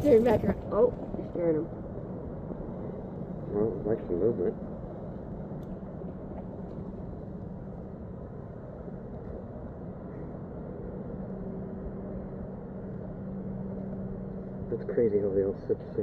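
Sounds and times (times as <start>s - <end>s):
low rumble: 0.0s - 5.2s
distant engine humming: 0.0s - 5.6s.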